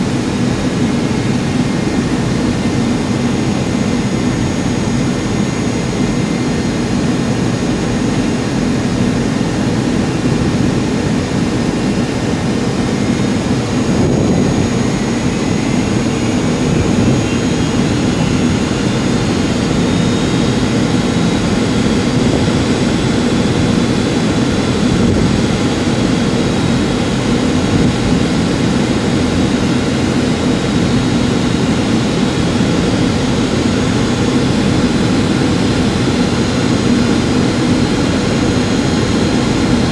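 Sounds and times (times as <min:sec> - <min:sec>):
jet engine cabin drone: 0:00.0 - 0:39.9
faint rising whine: 0:02.6 - 0:24.0.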